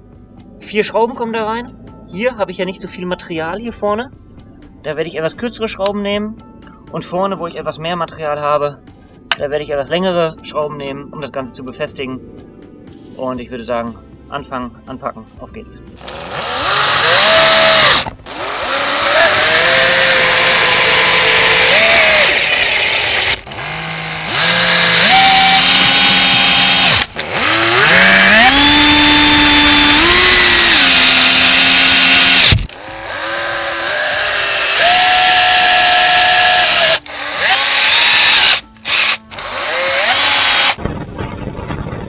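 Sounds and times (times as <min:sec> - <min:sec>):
cordless drill driving screws: 0:16.0 - 0:40.8.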